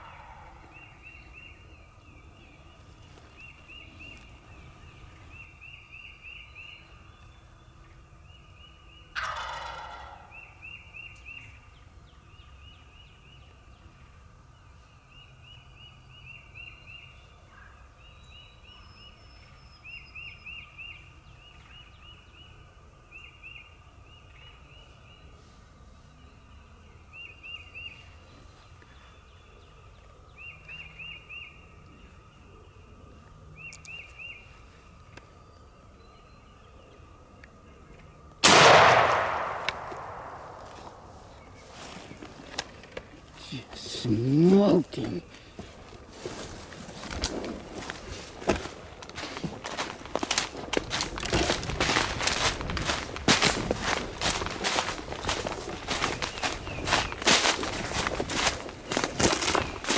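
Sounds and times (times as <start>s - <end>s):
high bird calls: 8.3s - 11.8s, 49.2s - 59.9s
turkey gobbling: 9.1s - 10.4s.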